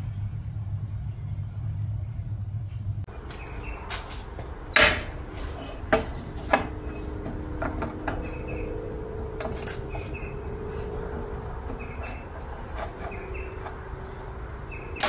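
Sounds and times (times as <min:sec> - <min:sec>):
faint steady hum: 0:00.0 - 0:15.0
metal tools clanking: 0:03.2 - 0:15.0.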